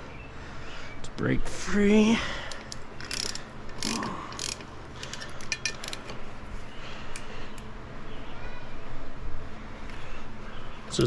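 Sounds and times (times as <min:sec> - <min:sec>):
ratchet wrench clicking: 0:02.5 - 0:06.0.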